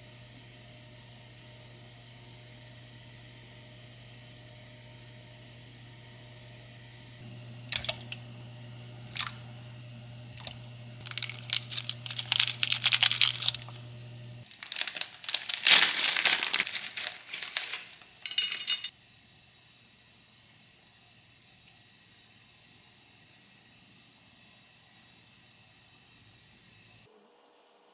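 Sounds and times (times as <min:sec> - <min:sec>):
plastic packaging crinkling: 0:10.4 - 0:18.9.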